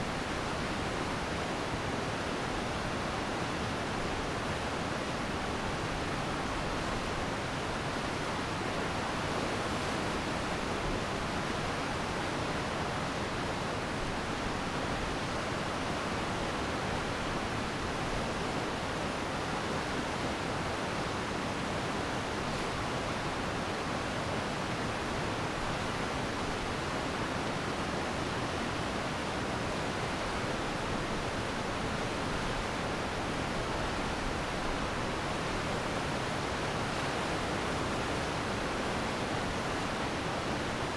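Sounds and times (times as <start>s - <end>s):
stream rushing: 15.1s - 40.9s.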